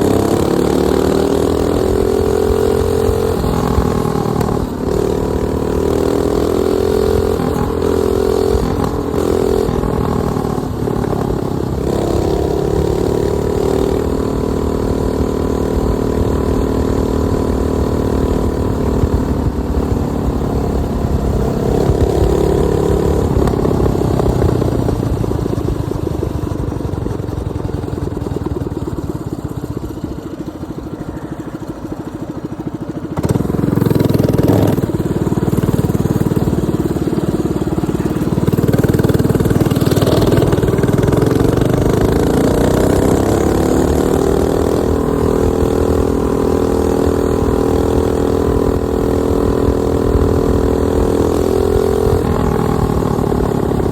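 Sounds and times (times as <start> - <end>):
minibike engine revving: 0.0 - 53.9.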